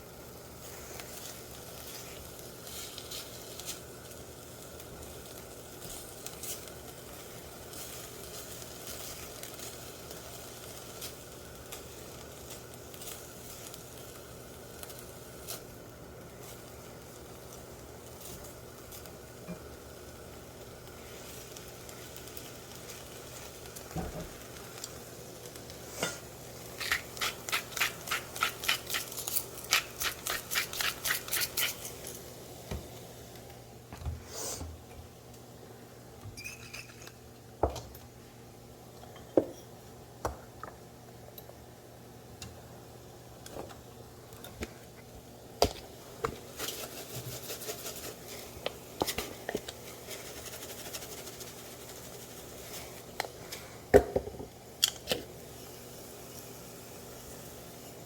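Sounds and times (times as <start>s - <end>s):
utensil scraping a skillet: 25.6s - 32.2s, 46.4s - 53.9s
pans and utensils clinking: 36.3s - 37.9s.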